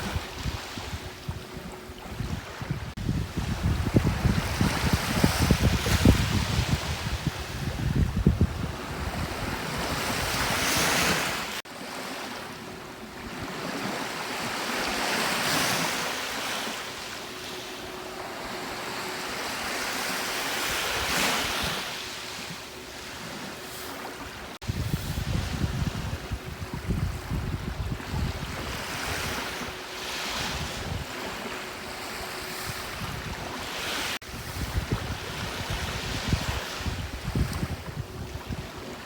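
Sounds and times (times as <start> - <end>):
wind on microphone: 0.0 - 11.6, 24.2 - 39.0
sea waves breaking on shore: 0.0 - 39.0.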